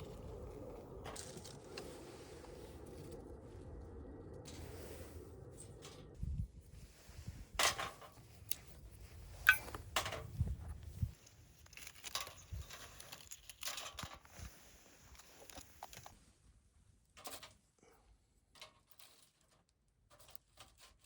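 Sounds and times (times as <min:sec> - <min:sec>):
paper rustling and crinkling: 0:11.1 - 0:16.2.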